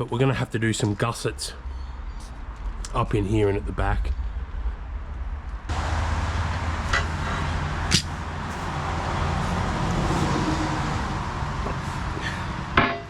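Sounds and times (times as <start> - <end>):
machine humming: 3.6 - 12.7.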